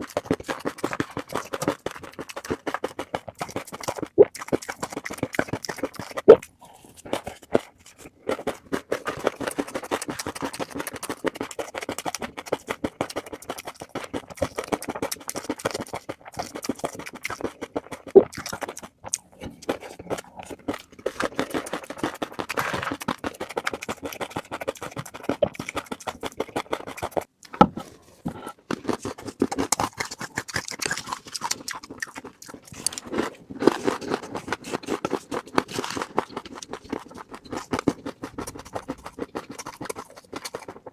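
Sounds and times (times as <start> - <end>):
fish roe crackling and popping: 28.7 - 40.9.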